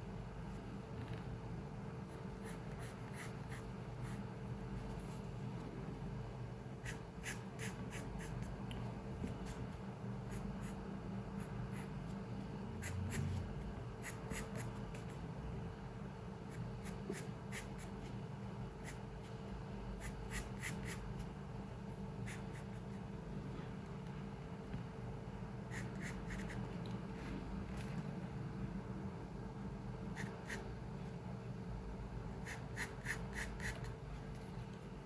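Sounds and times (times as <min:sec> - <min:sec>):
low room hum: 0:00.0 - 0:35.0
pencil scratching on paper: 0:02.1 - 0:05.3, 0:06.8 - 0:08.6, 0:12.8 - 0:15.2, 0:16.5 - 0:18.0, 0:20.0 - 0:21.1, 0:25.7 - 0:26.6, 0:32.4 - 0:33.9.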